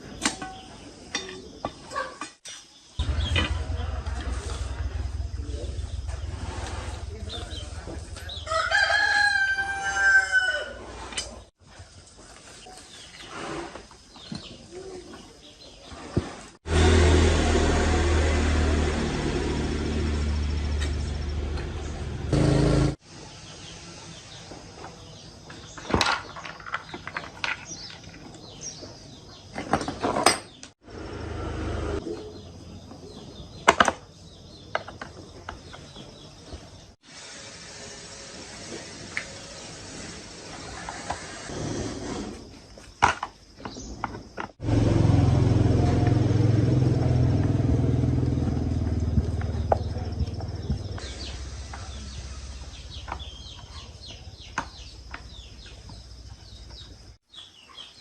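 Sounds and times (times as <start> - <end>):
low hum: 3.0 - 8.5
rooster crowing: 8.4 - 10.9.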